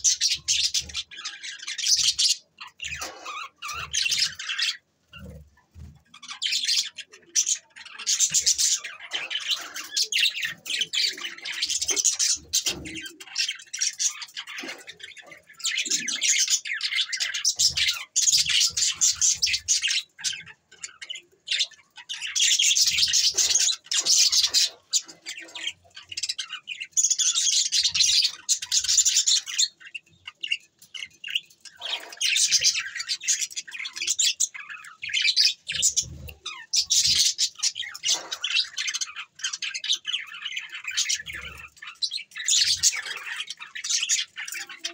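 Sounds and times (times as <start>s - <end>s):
budgerigars chattering and chirping: 0.0s - 44.9s.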